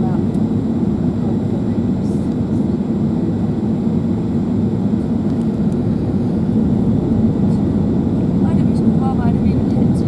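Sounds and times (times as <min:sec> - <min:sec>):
airplane cabin engine rumble: 0:00.0 - 0:10.0.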